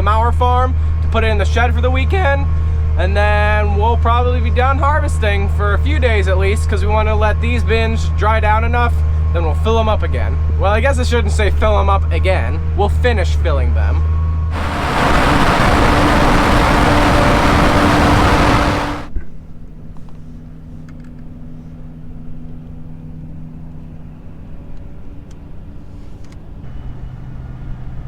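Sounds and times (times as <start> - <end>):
loud rushing hiss: 14.5 - 19.1
steady hum: 14.5 - 19.1
farm vehicle engine running: 14.6 - 19.1.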